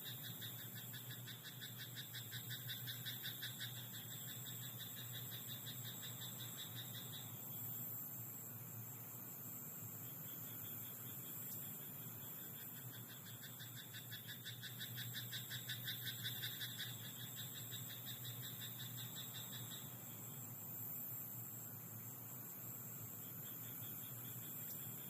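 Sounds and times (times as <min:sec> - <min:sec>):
steady high hiss: 0:00.0 - 0:25.0
frog croaking: 0:00.1 - 0:07.2, 0:12.5 - 0:19.9.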